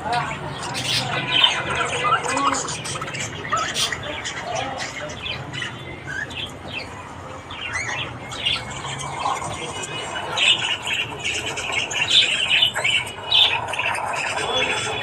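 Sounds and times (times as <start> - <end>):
budgerigars chirping and warbling: 0.0 - 15.0
budgerigar squawks: 0.6 - 7.0.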